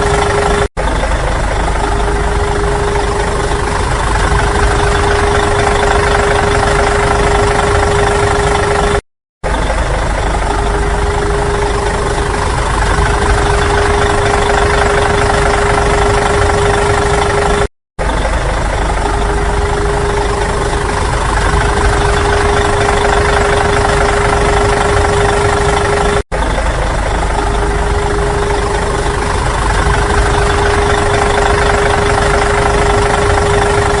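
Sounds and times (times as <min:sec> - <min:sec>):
vehicle engine idling with whine: 0:00.0 - 0:34.0.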